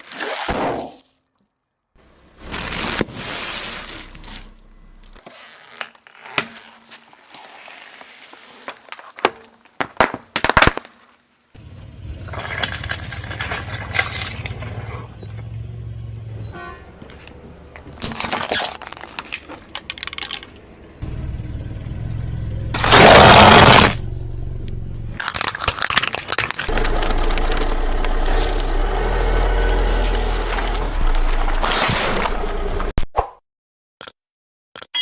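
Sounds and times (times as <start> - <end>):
car engine running low: 11.6 - 17.9, 19.9 - 25.4, 26.7 - 32.9
loud crunching burst: 22.7 - 24.0
tyres crushing objects: 22.8 - 24.0, 25.1 - 32.6.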